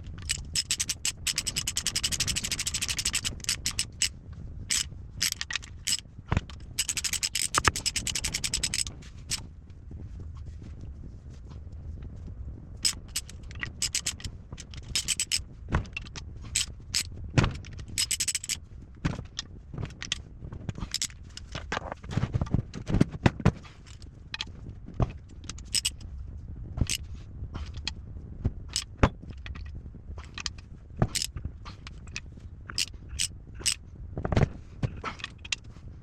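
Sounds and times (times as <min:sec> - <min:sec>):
low steady hum: 0:00.0 - 0:36.0
metal tools clinking and scraping: 0:00.2 - 0:04.1, 0:06.7 - 0:08.9, 0:12.8 - 0:15.4, 0:18.0 - 0:18.6, 0:25.6 - 0:26.0.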